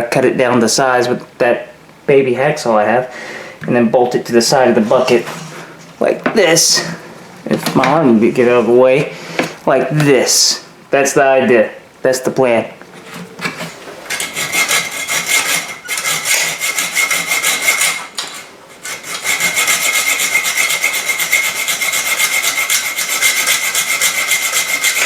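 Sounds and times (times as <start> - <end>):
hacksaw cutting metal: 13.0 - 25.0.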